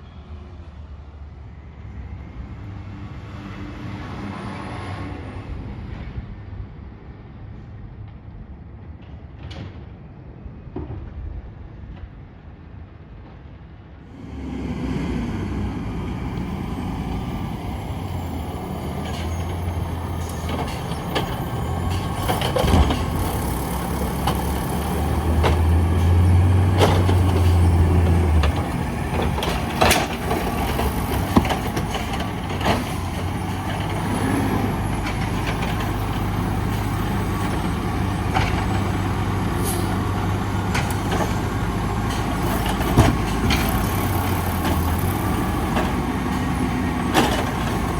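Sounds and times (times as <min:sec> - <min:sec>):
garbage truck engine hum: 0:14.1 - 0:47.9.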